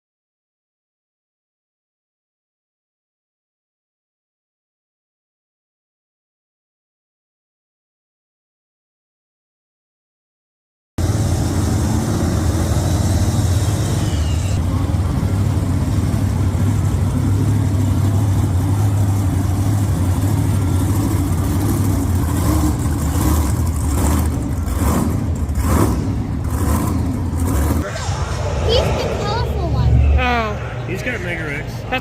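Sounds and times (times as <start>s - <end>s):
monster truck engines rumbling: 11.0s - 32.0s
voices: 27.8s - 32.0s.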